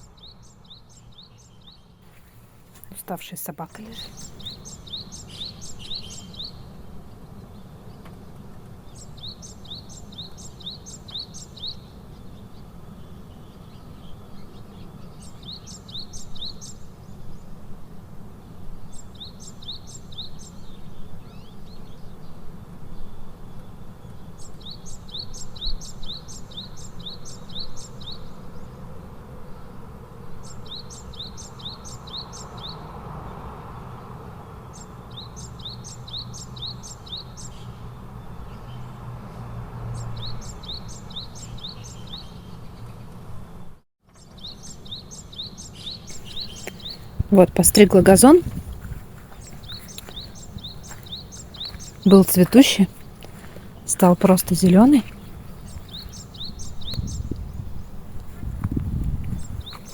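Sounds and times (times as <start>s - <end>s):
songbird singing: 0.0s - 16.8s, 44.2s - 59.9s.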